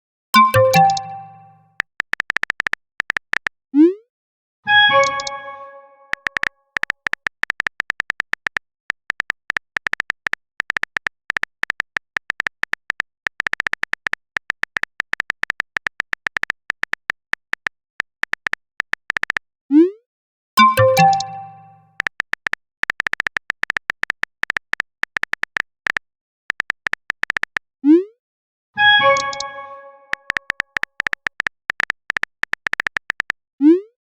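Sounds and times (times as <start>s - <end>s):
multi-tone notification chime: 0.4s - 1.7s, 4.7s - 6.1s, 20.6s - 21.9s, 28.8s - 30.2s
phone keyboard typing clicks: 0.4s - 3.6s, 4.9s - 5.5s, 6.1s - 19.4s, 20.6s - 27.7s, 29.0s - 33.4s
message sent swoop: 28.8s - 30.4s.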